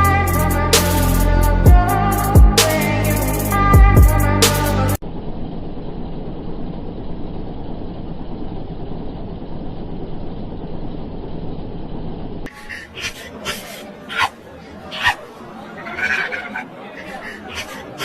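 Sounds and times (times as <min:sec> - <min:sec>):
vehicle rumbling in motion: 0:03.0 - 0:18.0.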